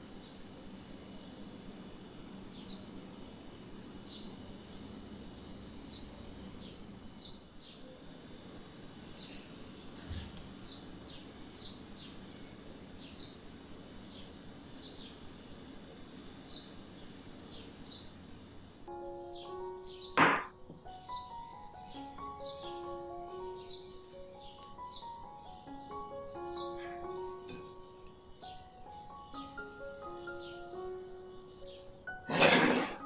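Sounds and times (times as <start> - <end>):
steady low hum: 0.0 - 33.0
bird chirping: 10.6 - 18.2, 19.1 - 32.6.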